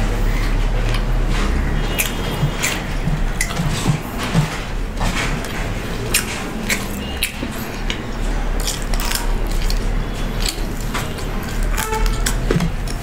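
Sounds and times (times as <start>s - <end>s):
wet mouth sounds: 0.0s - 8.0s
crisp chewing crunches: 0.0s - 13.0s.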